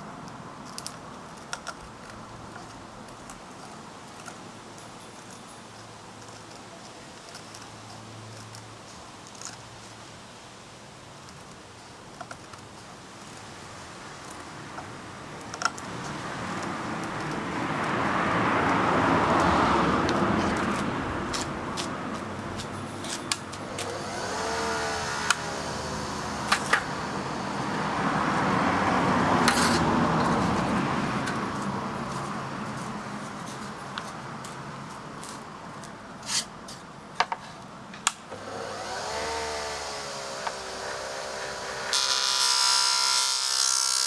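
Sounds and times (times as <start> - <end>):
disc sander rasping: 11.3 - 35.4, 38.4 - 44.0.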